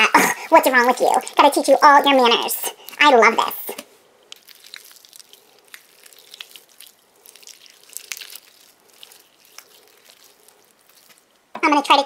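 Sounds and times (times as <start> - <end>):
wet putty squeezed and stretched: 4.3 - 11.5.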